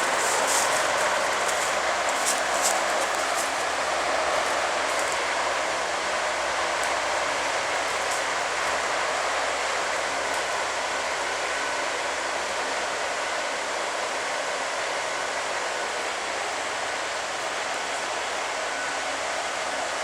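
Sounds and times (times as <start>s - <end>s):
helicopter engine running: 0.0s - 12.6s.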